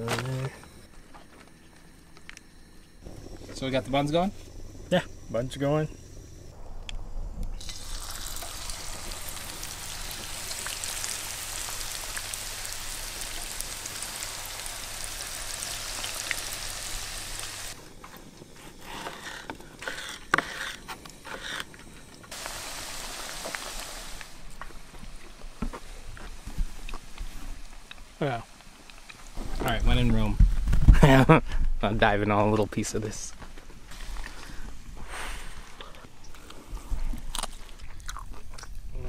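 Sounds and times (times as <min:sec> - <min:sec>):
fish frying sizzle: 0:07.6 - 0:17.8, 0:22.3 - 0:25.4.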